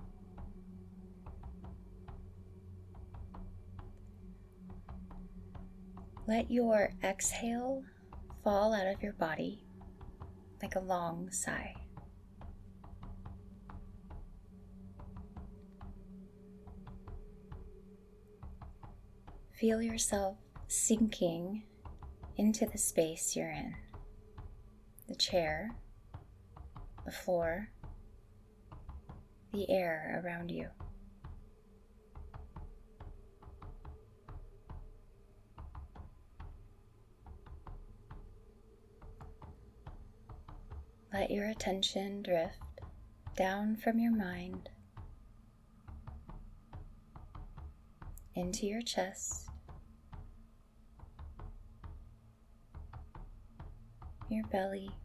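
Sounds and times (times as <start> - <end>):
faint steady hum: 0.0 - 55.0
soft knocks with low thump: 0.0 - 55.0
light ticks and taps: 44.5 - 48.5.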